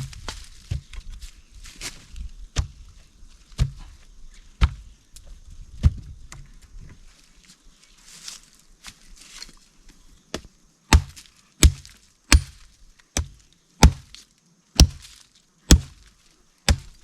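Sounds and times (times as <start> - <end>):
wood being chopped: 2.6 - 2.8, 3.5 - 3.9, 4.6 - 4.9, 10.3 - 14.2, 14.8 - 16.1, 16.7 - 17.0.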